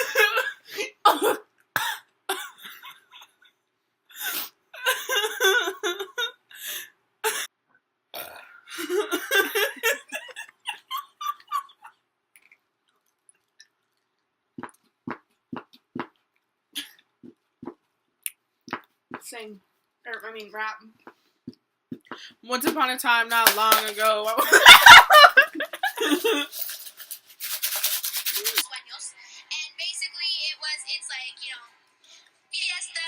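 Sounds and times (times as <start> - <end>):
person burping loudly: 8.1 - 9.0.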